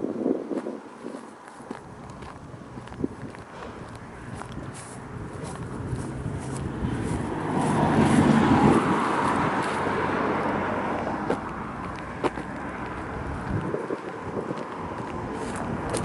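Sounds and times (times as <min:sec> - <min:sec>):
car driving past: 0:03.5 - 0:13.7.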